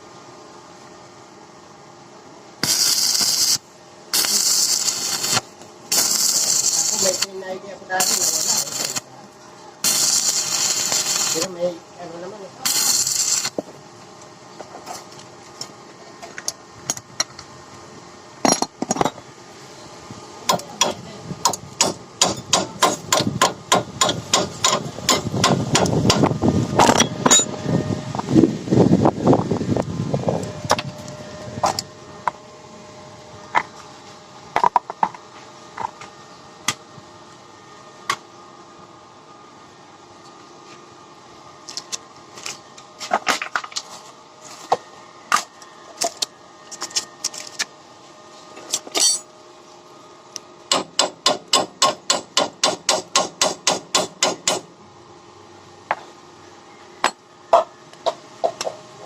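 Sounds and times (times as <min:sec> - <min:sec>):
hammer striking metal: 0:20.5 - 0:27.6, 0:50.7 - 0:54.6.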